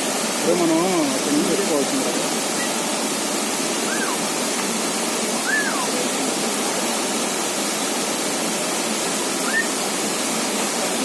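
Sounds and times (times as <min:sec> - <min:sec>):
waterfall rushing: 0:00.0 - 0:11.0
short high call: 0:03.8 - 0:04.2, 0:05.4 - 0:06.0.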